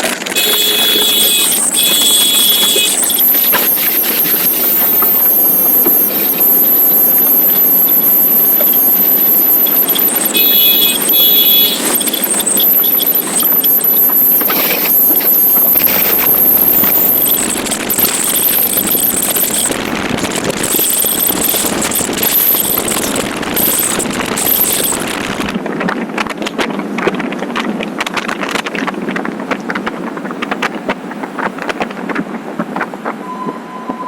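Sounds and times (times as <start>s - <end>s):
high whine: 0.0s - 25.6s
motorcycle engine: 0.0s - 25.6s.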